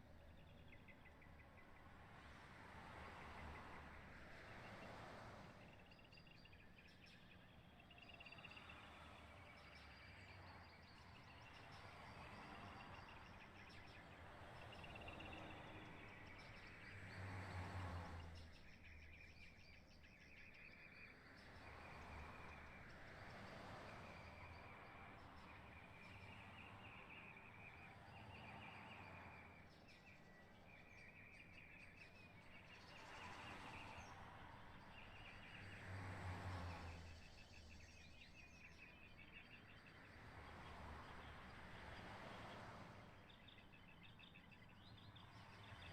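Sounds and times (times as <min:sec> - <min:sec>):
small birds chirping: 0:18.1 - 0:45.9.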